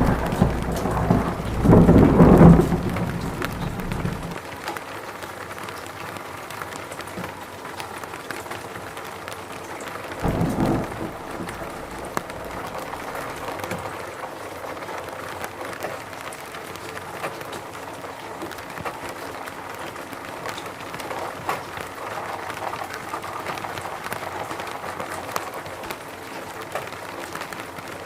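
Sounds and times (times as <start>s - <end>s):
low rumble: 0.0s - 4.4s, 10.2s - 13.8s
rain falling in a forest: 0.0s - 28.0s.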